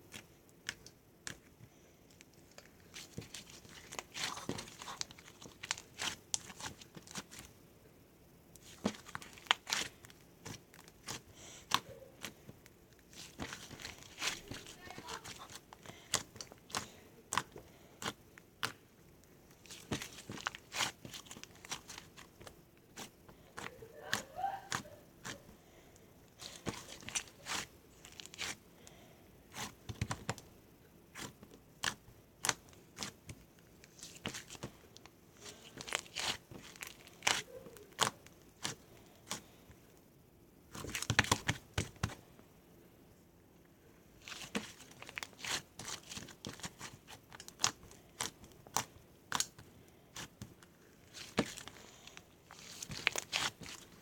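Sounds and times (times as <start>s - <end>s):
crinkling and tearing: 2.1s - 7.5s, 8.6s - 18.8s, 19.5s - 25.5s, 26.4s - 28.6s, 31.1s - 39.6s, 44.2s - 54.0s.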